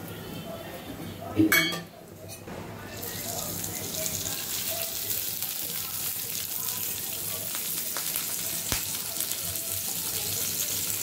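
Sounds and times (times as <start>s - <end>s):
chillies sizzling in oil: 2.9s - 11.0s.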